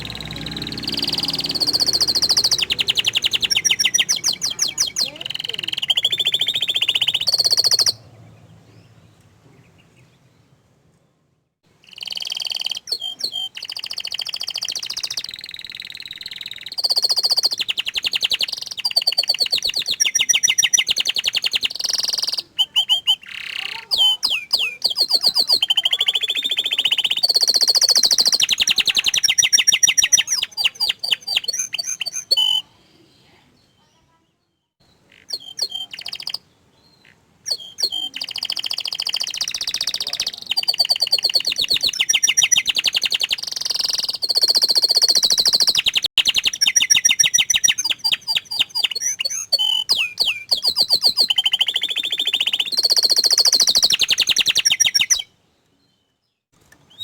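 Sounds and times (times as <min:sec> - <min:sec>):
canary singing trills: 0:00.0 - 0:10.5, 0:11.7 - 0:57.0.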